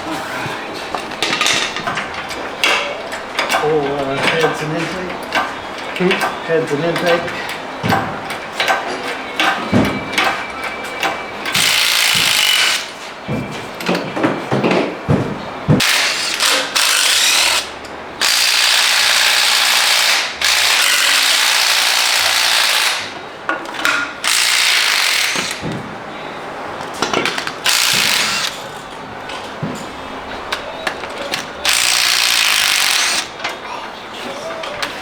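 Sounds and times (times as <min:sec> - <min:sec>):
power ratchet wrench spinning: 0:15.8 - 0:23.1, 0:24.2 - 0:25.6, 0:27.6 - 0:28.6, 0:31.6 - 0:33.3.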